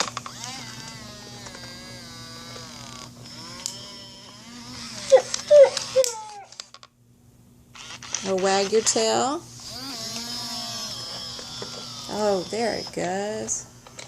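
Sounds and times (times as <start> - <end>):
toy dog whimper: 3.6 - 6.6, 9.7 - 13.2
toy dog yips: 4.9 - 6.5.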